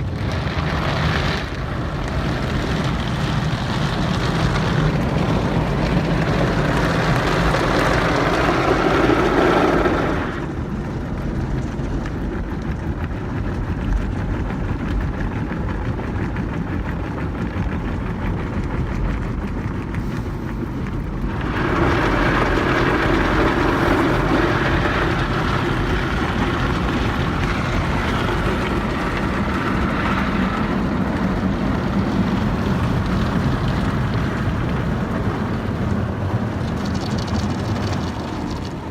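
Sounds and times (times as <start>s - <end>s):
car wash spraying rush: 0.0s - 38.9s.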